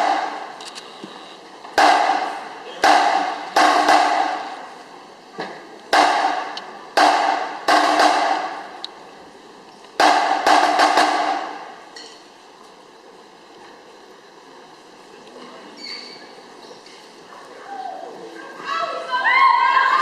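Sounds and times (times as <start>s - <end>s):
loud percussive hits echoing: 0.0s - 0.6s, 1.8s - 4.8s, 5.4s - 8.9s, 10.0s - 12.0s.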